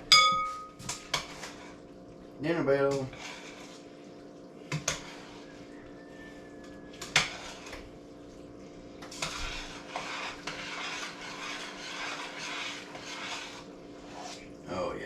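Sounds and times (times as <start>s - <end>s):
spoon stirring thick mixture: 0.0s - 14.7s
spoon knocking against pot: 0.1s - 1.3s.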